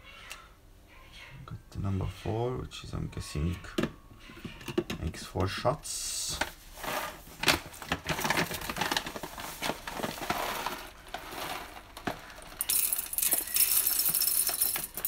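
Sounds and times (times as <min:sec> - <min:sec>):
coffee beans rattling into grinder: 0:06.9 - 0:15.0.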